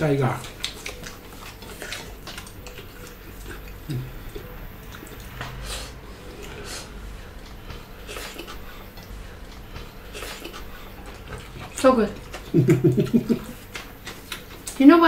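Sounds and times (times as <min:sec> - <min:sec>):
fingers clicking on plates: 0:00.0 - 0:05.6
wet chewing and mouth smacks: 0:00.0 - 0:14.9
person humming mm: 0:03.8 - 0:04.4.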